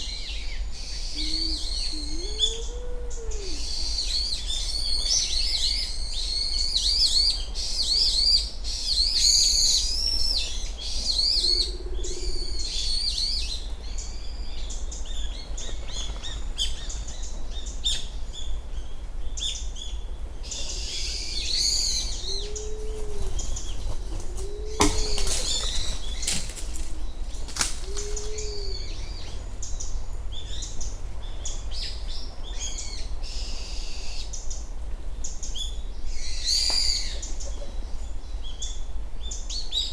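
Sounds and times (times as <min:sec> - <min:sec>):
pigeon cooing: 0:01.1 - 0:03.9, 0:11.1 - 0:12.9, 0:20.6 - 0:29.4, 0:37.0 - 0:37.8.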